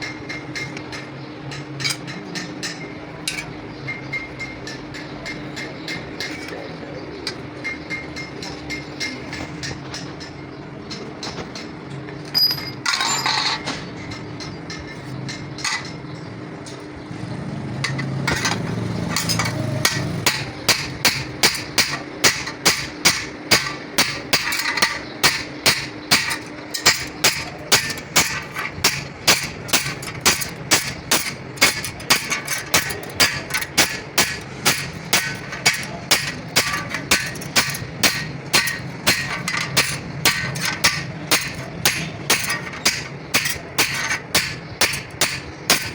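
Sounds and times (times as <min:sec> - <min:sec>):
hammer striking metal: 0:00.0 - 0:06.6, 0:17.8 - 0:45.9
scattered knocks: 0:17.8 - 0:45.9.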